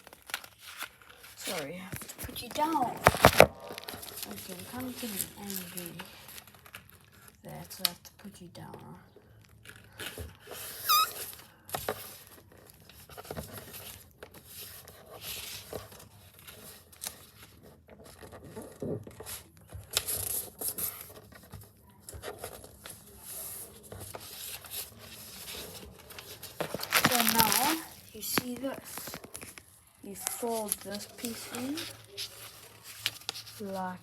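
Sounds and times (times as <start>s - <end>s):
paper rustling and crinkling: 0.0s - 8.1s, 8.7s - 34.0s
brief high-pitched squeak: 10.7s - 11.3s.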